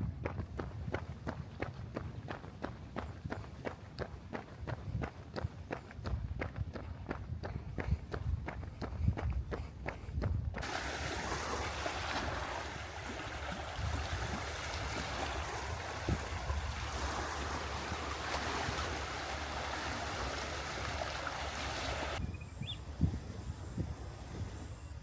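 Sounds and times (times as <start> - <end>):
water rushing: 10.6 - 22.2.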